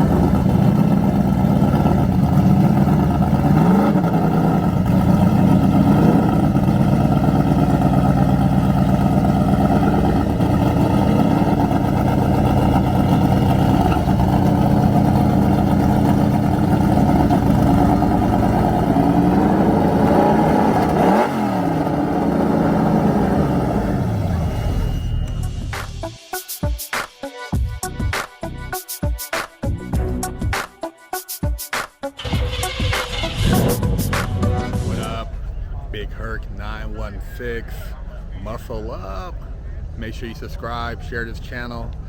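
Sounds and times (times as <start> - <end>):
car engine idling: 0.0 - 26.1, 32.2 - 42.0
engine revving: 0.0 - 26.1, 32.2 - 35.5.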